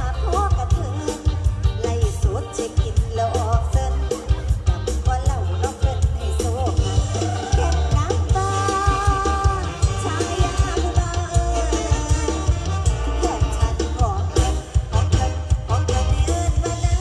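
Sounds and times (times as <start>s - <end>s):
bass and drum-kit beat: 0.0s - 17.0s
ornamented melody line: 3.6s - 17.0s.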